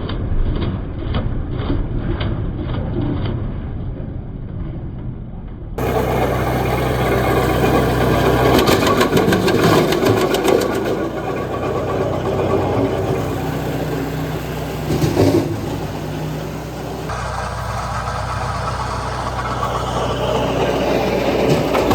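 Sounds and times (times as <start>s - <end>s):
wood chipper running: 5.8s - 21.9s.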